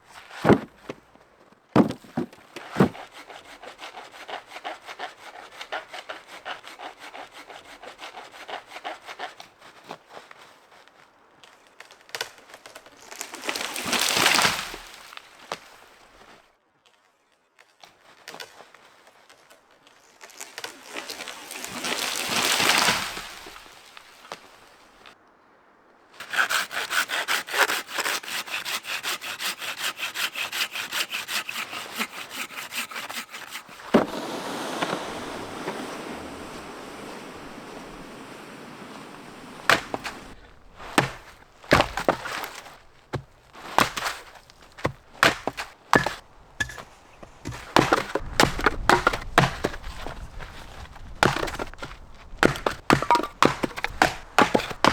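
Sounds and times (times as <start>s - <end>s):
hand saw cutting wood: 0.2s - 1.0s, 1.8s - 9.6s, 26.2s - 35.8s, 39.3s - 54.9s
wood knocks and cracks: 0.3s - 1.1s, 1.8s - 3.1s, 33.8s - 34.2s, 39.6s - 54.9s.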